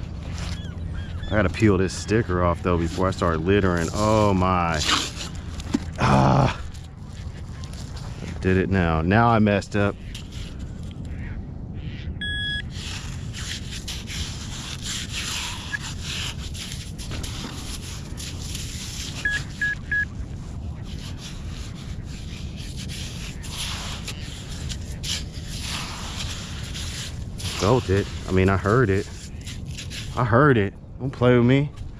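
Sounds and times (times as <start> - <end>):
digging in wet sand: 0.0 - 11.1, 12.4 - 30.7
metal detector beeps: 12.2 - 12.7, 19.2 - 20.1.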